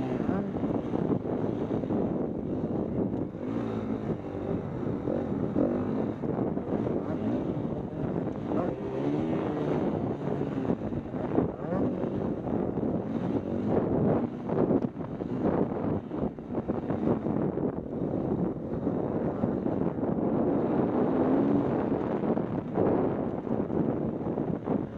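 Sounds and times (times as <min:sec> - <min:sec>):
dirt bike engine revving: 0:00.0 - 0:23.2
wind rushing over microphone: 0:00.0 - 0:24.9.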